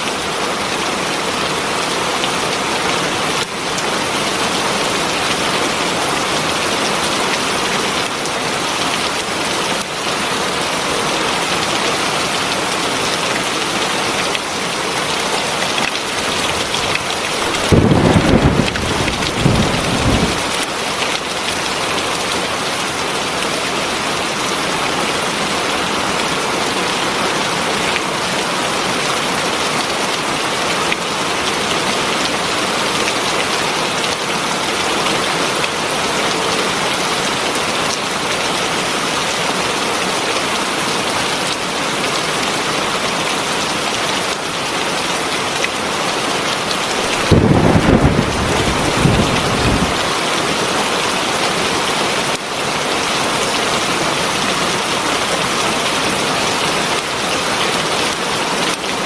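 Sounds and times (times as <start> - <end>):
heavy rain falling: 0.0 - 59.0
low rumble of thunder: 17.4 - 20.6, 47.2 - 50.0.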